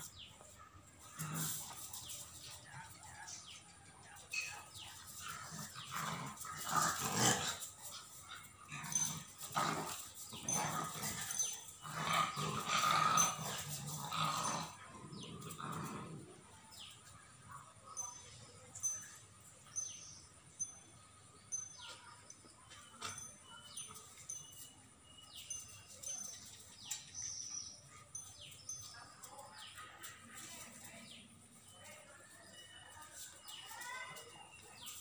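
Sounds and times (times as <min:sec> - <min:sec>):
dogs growling: 0:00.0 - 0:17.1.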